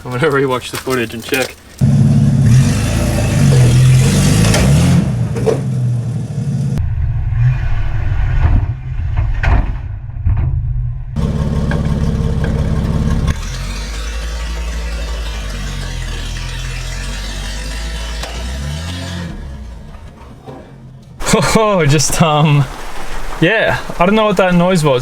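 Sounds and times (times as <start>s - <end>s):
engine revving under load: 1.8s - 10.4s, 11.2s - 21.2s
sharp knocks and clunks: 3.4s - 5.9s.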